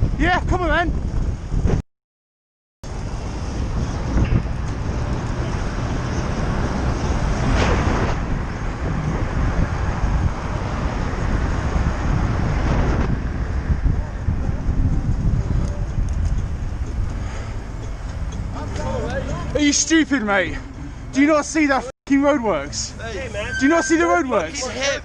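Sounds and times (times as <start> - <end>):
wind on microphone: 0.0 - 1.8, 2.9 - 18.8
passing whoosh: 4.4 - 13.7.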